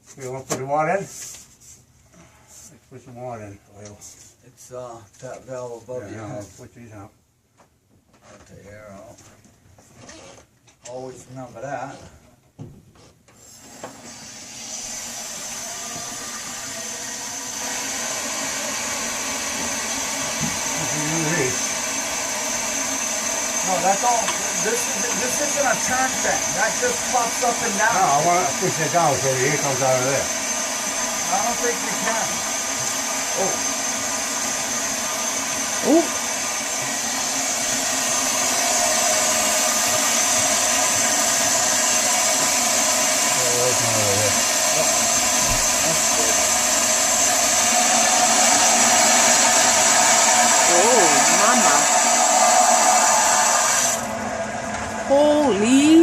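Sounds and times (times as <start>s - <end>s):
water rushing through a pipe: 14.1s - 54.4s
air and water hissing through valve: 39.0s - 54.1s.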